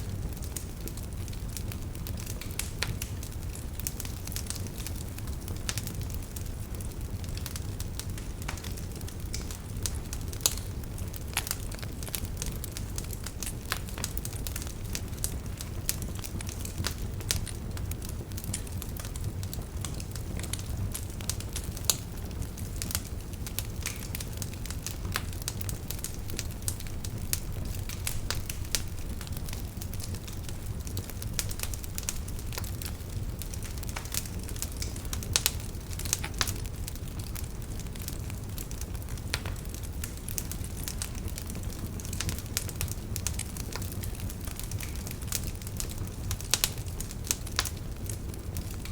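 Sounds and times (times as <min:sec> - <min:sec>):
fire popping and crackling: 0:00.0 - 0:48.9
fire rumbling: 0:00.0 - 0:48.9.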